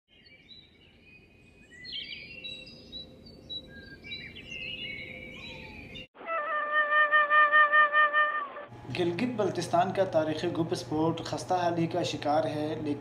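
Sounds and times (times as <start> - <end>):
small birds chirping: 0.1 - 6.1.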